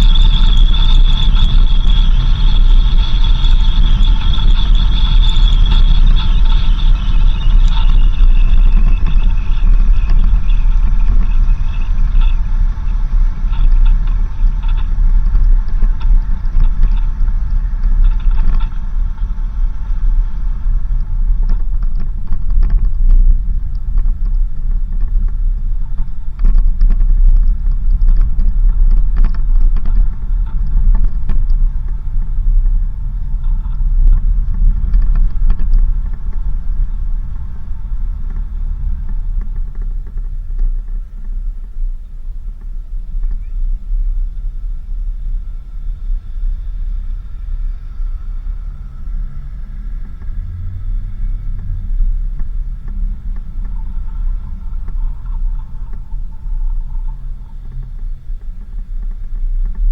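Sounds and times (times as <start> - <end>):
vehicle engine and tyres rumbling: 0.0 - 59.9.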